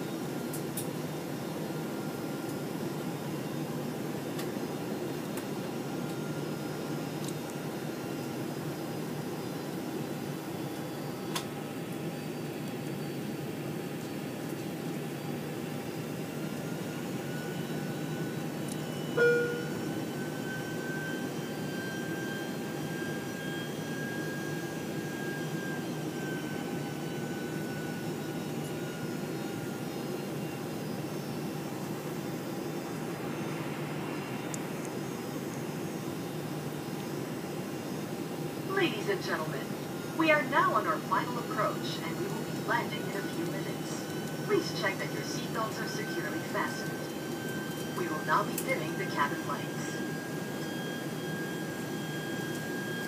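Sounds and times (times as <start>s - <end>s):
airliner cabin jet engine rush: 0.2s - 53.0s
faint whine: 14.6s - 53.0s.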